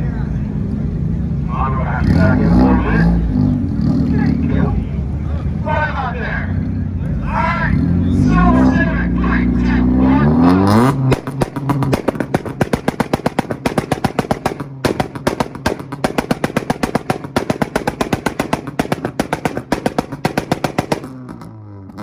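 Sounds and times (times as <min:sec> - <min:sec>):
car engine revving: 0:00.0 - 0:22.0
exhaust pops and bangs: 0:10.6 - 0:22.0.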